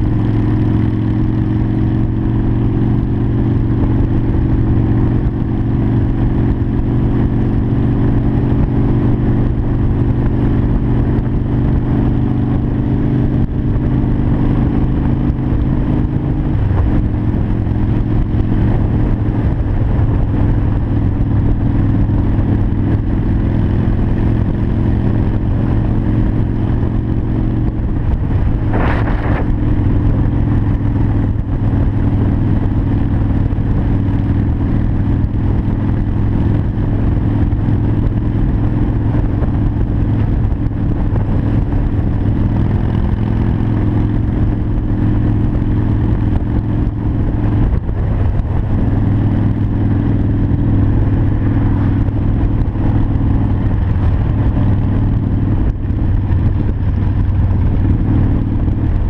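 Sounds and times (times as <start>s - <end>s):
motorcycle engine cruising: 0.0s - 59.0s
short rushing noise: 28.3s - 29.7s.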